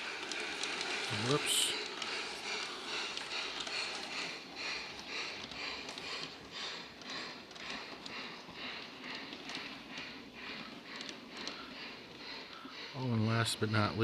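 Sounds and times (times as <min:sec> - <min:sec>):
model steam locomotive chuffing: 0:00.0 - 0:14.0.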